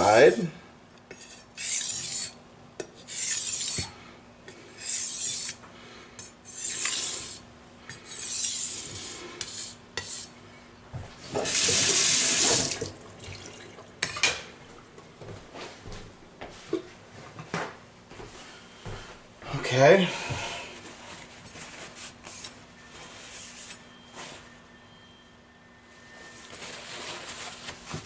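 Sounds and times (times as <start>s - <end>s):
knife scraping on wet whetstone: 1.1s - 3.9s, 4.8s - 5.6s, 6.2s - 10.3s, 23.3s - 23.9s.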